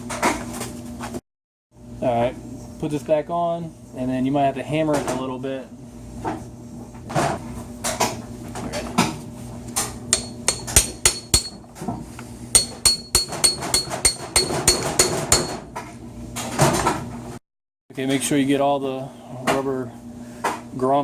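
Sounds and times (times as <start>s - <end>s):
hammer tapping metal: 10.1s - 11.6s, 12.6s - 15.6s.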